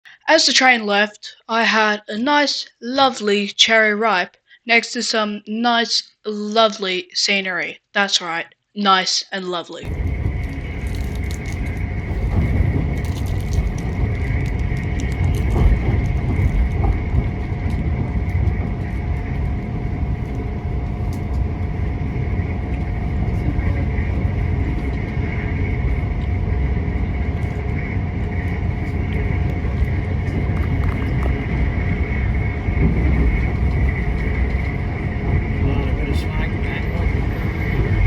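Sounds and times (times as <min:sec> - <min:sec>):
train wheels rumbling on rails: 0:09.8 - 0:38.0.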